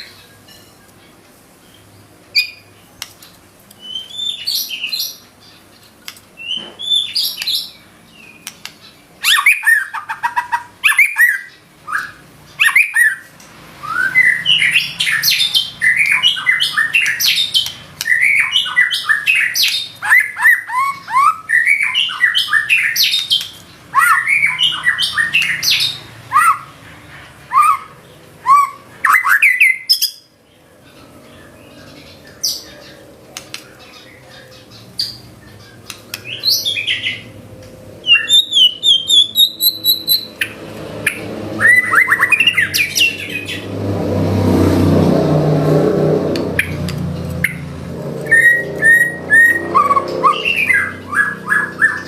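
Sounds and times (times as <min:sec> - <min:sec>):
songbird singing whistled trills: 0:03.8 - 0:05.3, 0:09.2 - 0:26.7, 0:38.0 - 0:43.6, 0:48.3 - 0:52.0.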